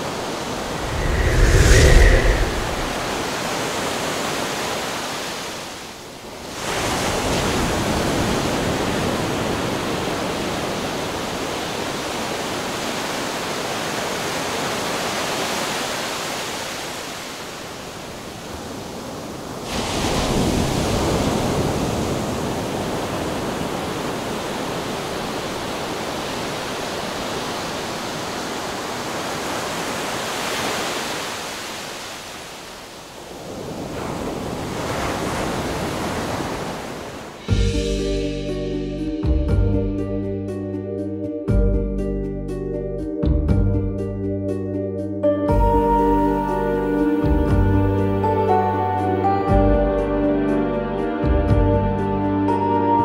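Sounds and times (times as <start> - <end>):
sea surf: 0.0 - 37.6, 45.6 - 51.3
rushing wind: 0.0 - 38.4.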